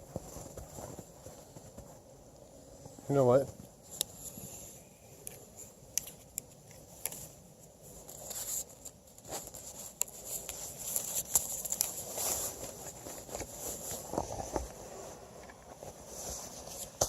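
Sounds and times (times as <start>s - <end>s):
footsteps crunching in snow: 0.0s - 2.1s, 8.3s - 17.0s.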